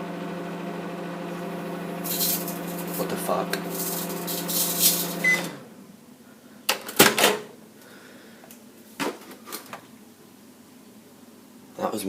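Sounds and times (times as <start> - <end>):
microwave oven hum: 0.0 - 6.2
microwave short beep: 5.1 - 5.6.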